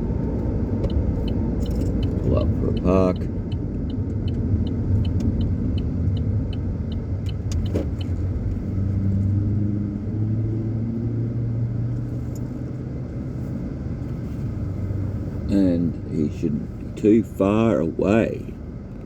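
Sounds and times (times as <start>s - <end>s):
car engine running: 0.0s - 19.0s
turn indicator ticking: 0.2s - 9.0s.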